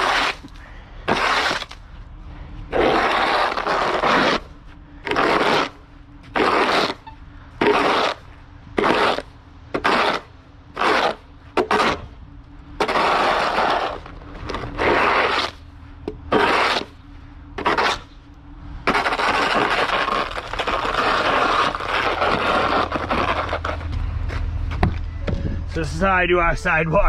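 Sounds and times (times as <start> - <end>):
snow shovel scraping pavement: 0.0 - 1.8, 2.7 - 12.2, 12.8 - 15.7, 16.3 - 17.0, 17.6 - 18.2, 18.8 - 24.5.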